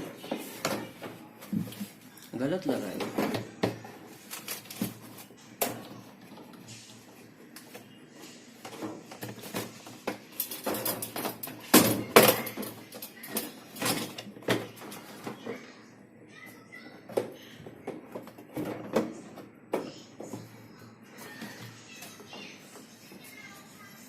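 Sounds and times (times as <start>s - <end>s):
hard parts knocking and scraping: 8.6s - 15.6s.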